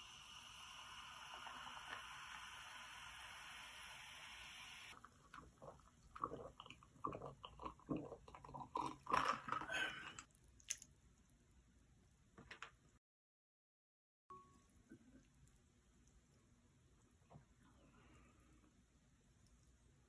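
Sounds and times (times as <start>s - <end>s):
slurping and chewing noodles: 4.9s - 10.8s.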